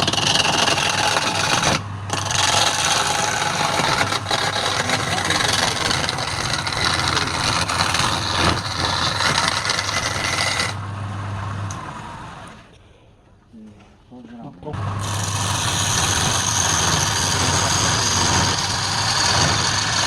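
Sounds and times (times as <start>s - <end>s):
tool rasping on spinning wood: 0.0s - 10.8s, 15.0s - 20.0s
lathe motor hum: 0.0s - 12.6s, 14.8s - 20.0s.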